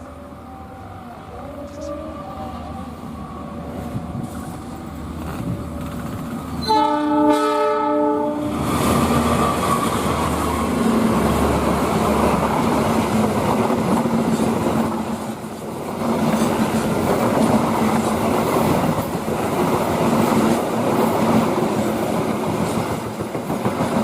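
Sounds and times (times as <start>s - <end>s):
train wheels rumbling on rails: 1.7s - 24.0s
train horn blast: 6.6s - 8.6s.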